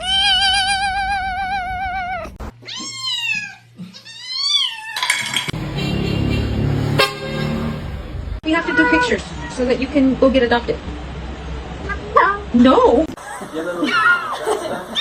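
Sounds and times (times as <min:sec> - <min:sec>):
cat meowing: 0:00.0 - 0:05.1
cat yowling: 0:00.0 - 0:05.1.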